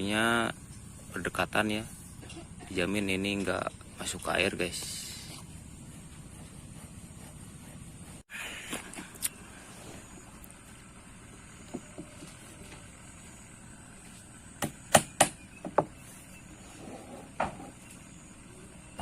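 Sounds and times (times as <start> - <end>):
hammer knocking nails: 14.6 - 15.9.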